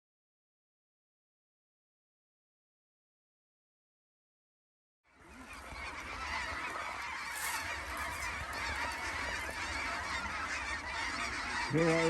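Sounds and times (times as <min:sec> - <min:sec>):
geese honking: 0:05.1 - 0:12.0.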